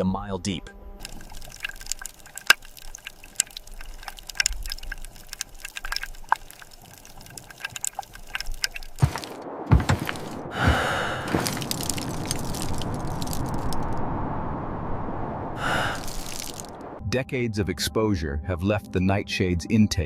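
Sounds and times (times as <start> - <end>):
faint low rumble: 0.0 - 17.3
underwater clicks and crackles: 1.0 - 10.5, 11.3 - 14.0, 15.6 - 16.8
heavy thumps: 9.0 - 11.7.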